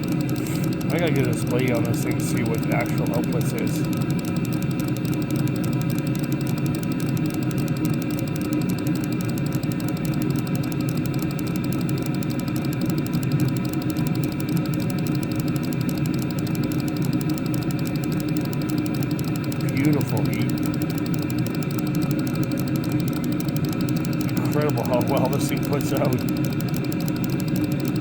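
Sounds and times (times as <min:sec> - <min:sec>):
air heater burner and fan rushing: 0:00.0 - 0:28.0.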